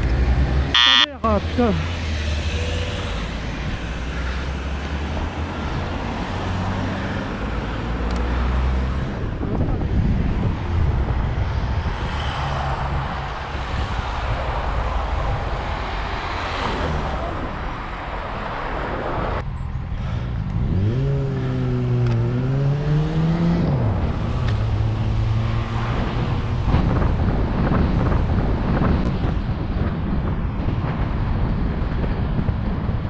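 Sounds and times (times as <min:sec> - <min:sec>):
traffic noise: 0:00.0 - 0:33.0
wind on microphone: 0:02.4 - 0:33.0
car engine revving: 0:20.6 - 0:27.0.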